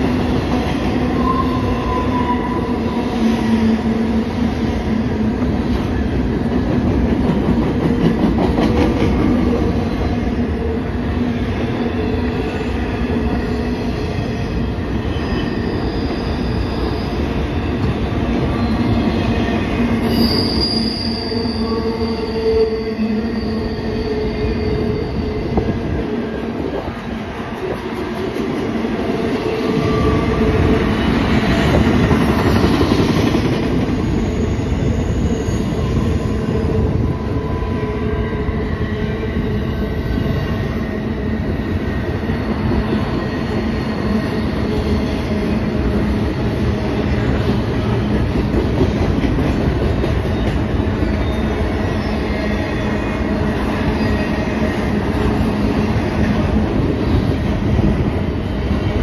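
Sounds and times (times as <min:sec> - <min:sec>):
freight train wheels rumbling: 0:00.0 - 0:59.0
high-pitched wheel squeal: 0:15.0 - 0:17.3, 0:20.0 - 0:25.6.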